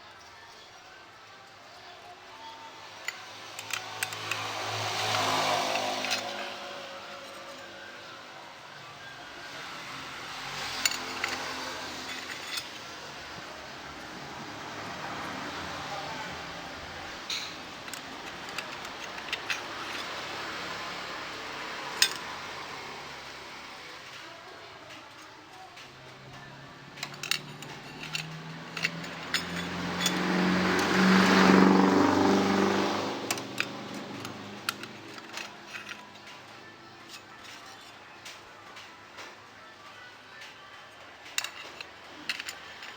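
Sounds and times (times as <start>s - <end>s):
small metal parts clinking: 3.0s - 7.8s, 10.3s - 14.1s, 17.3s - 20.9s, 21.8s - 22.6s, 24.9s - 38.9s, 41.2s - 42.9s
vehicle engine passing by: 3.1s - 24.2s, 26.1s - 37.0s.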